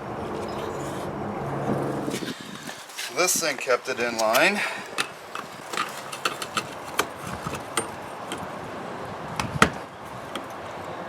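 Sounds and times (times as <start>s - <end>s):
clicks and knocks of machine parts: 4.2s - 8.5s.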